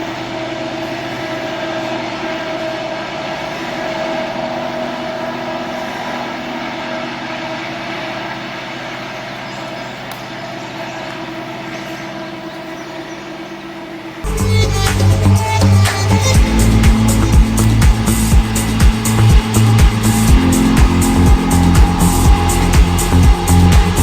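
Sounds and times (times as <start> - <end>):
steady held tones: 0.0 - 24.0
freight train rolling past: 13.9 - 24.0.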